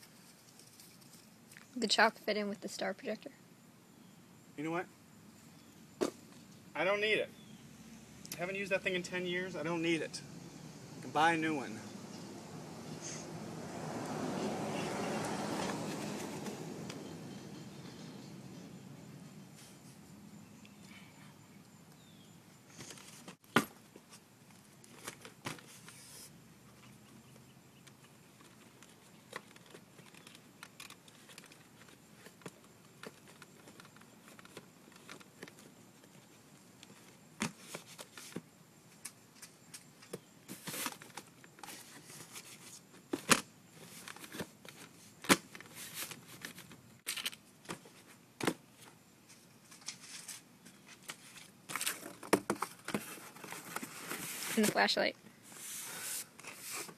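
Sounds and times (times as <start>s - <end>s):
rustling of belongings being packed: 39.3s - 56.9s.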